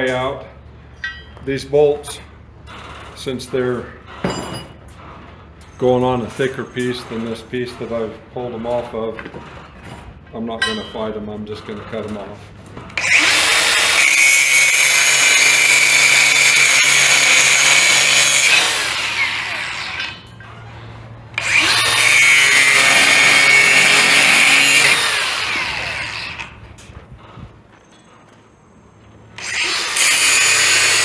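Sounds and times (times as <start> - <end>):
power tool whining: 12.8 - 26.8, 29.3 - 31.0.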